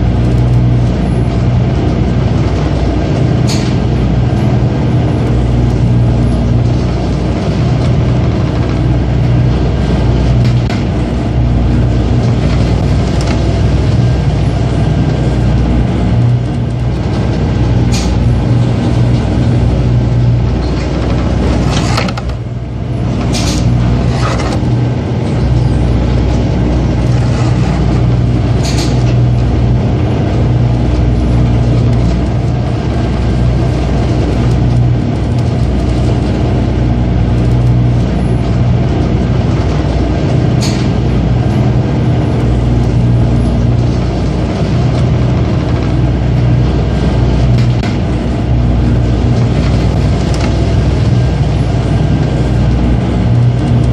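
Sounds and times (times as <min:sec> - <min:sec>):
boat diesel engine humming: 0:00.0 - 0:53.9.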